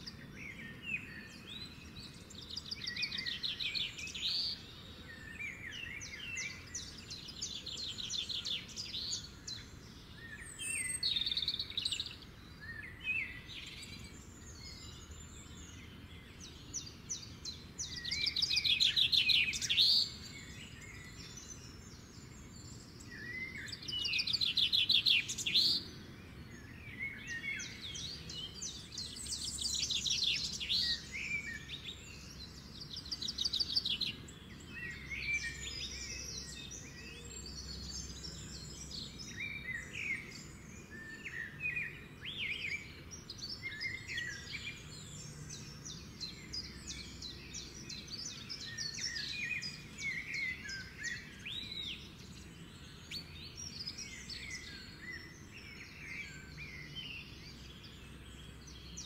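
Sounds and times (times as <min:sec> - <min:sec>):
birds singing and calling: 0:00.0 - 0:59.0.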